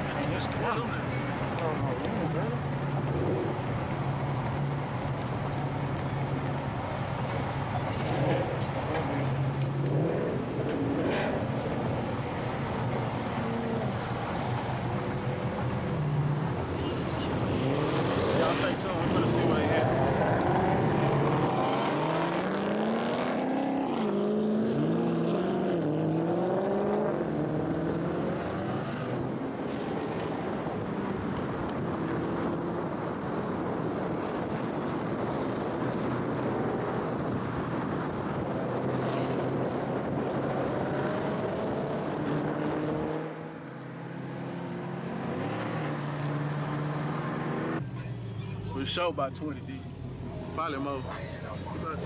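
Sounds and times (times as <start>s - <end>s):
road and wind noise: 0.0s - 52.0s.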